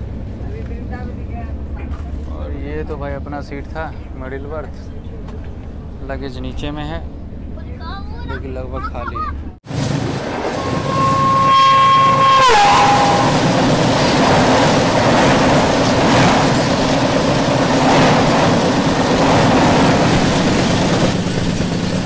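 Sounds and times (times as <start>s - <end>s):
passenger coaches rumbling past: 9.3s - 22.0s
locomotive horn: 10.5s - 13.7s.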